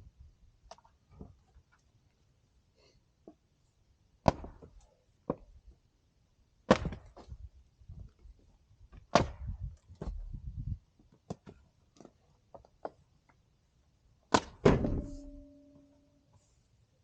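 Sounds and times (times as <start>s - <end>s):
heavy knocks and thuds: 14.6s - 15.4s
brief ringing tone: 15.0s - 16.2s.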